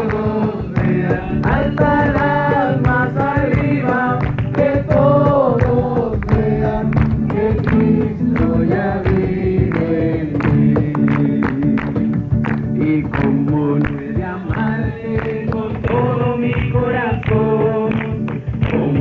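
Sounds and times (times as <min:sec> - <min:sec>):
steady percussive beat: 0:00.0 - 0:14.7
group singing a worship song: 0:00.0 - 0:19.0.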